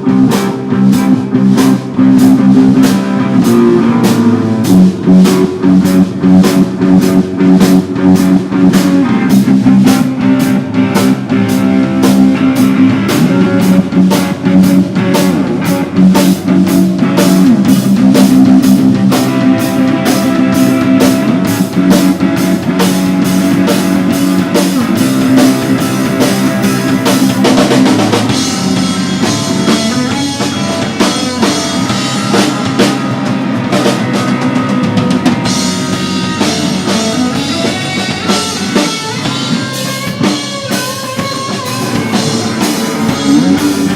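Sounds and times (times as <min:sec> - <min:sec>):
fast drum hits: 0:00.0 - 0:43.9
rock band playing: 0:00.0 - 0:43.9.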